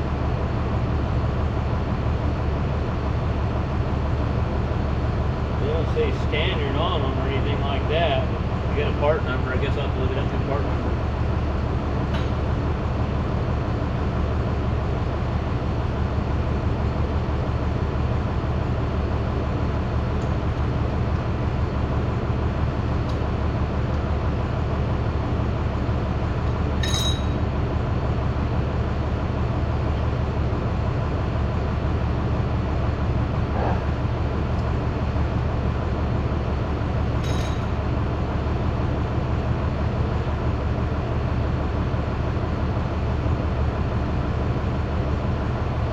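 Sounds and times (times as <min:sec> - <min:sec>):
low mechanical hum: 0:00.0 - 0:45.9
light metallic clinks: 0:26.8 - 0:27.4, 0:37.2 - 0:37.7.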